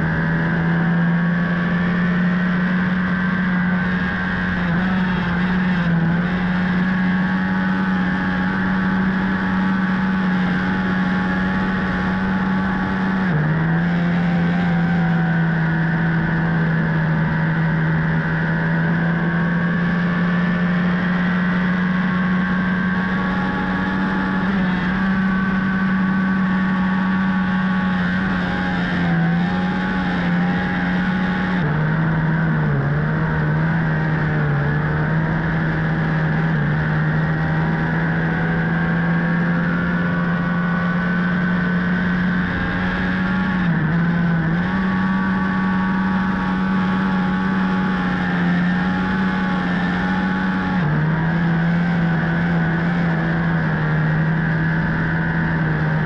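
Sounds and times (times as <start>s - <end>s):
motorcycle engine at high speed: 0.0s - 56.0s.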